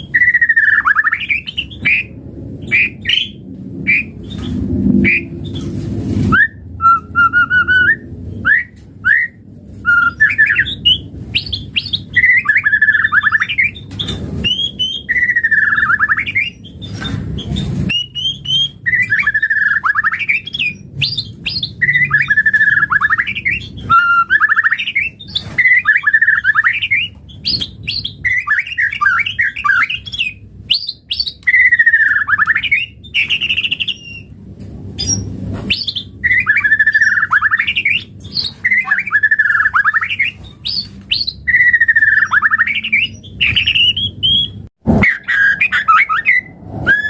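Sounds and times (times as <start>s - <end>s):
bird singing whistles and harsh notes: 0.0s - 34.3s, 35.0s - 47.0s.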